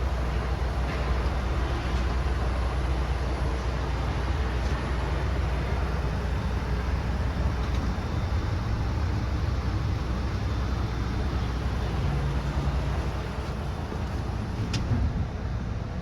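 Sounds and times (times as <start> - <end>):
truck engine rumbling steadily: 0.0 - 16.0.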